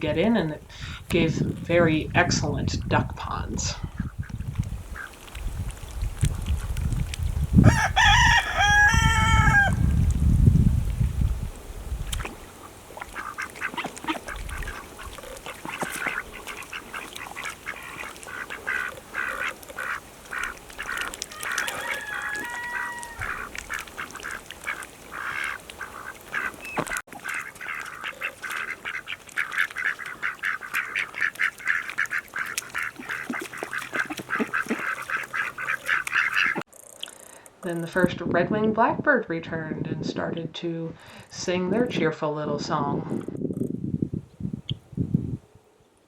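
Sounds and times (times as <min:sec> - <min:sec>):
ducks quacking: 0:12.6 - 0:36.6.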